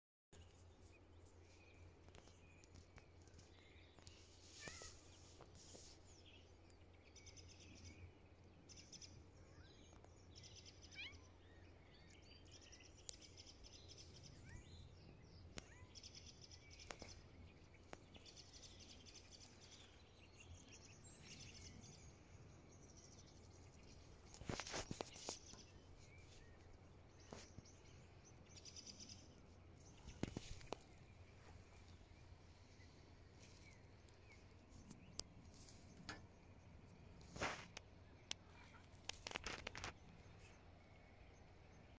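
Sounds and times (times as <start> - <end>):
small birds chirping: 0.4 - 41.9
rustling: 24.2 - 27.6, 37.2 - 40.0.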